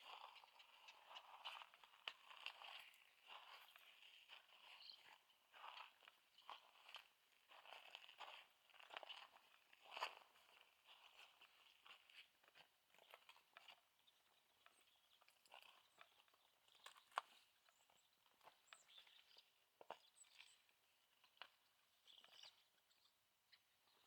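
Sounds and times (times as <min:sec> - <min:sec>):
faint footsteps crunching: 0:00.0 - 0:13.8.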